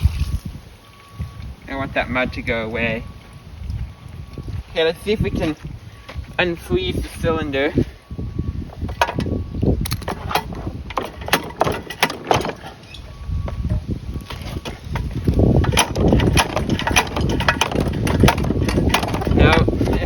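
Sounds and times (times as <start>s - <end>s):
wind rumble on microphone: 0.0s - 20.0s
clacks and knocks of seized engine: 8.7s - 20.0s.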